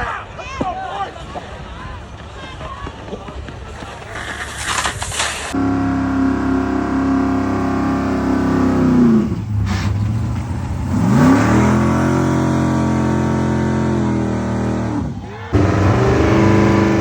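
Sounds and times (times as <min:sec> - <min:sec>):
short rushing burst: 0:03.7 - 0:06.2
motor running: 0:05.6 - 0:09.2, 0:15.6 - 0:17.0.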